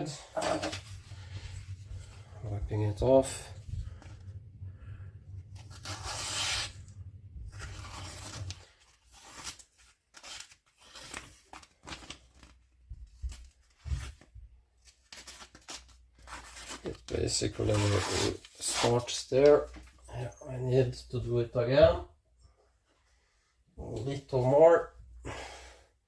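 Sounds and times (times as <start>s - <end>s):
paper towel rustling and tearing: 0.0s - 4.0s, 5.4s - 19.7s.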